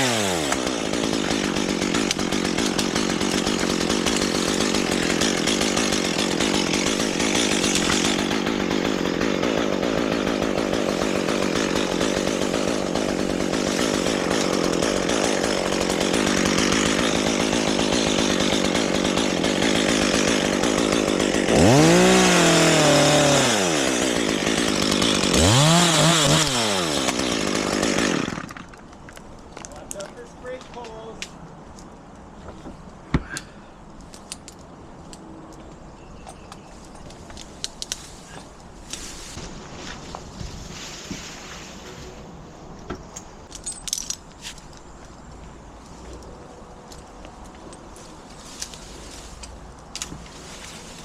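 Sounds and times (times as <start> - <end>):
chainsaw cutting wood: 0.0 - 28.9.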